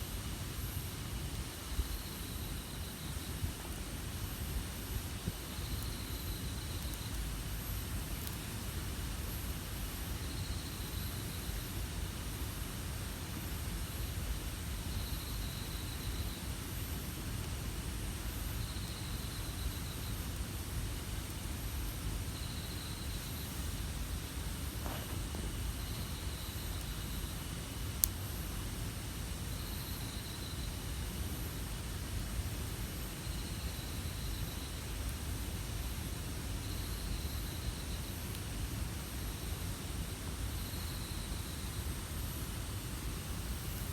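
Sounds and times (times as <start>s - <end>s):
campfire burning: 0.2s - 15.7s, 16.4s - 43.9s
fire pop: 24.8s - 26.0s.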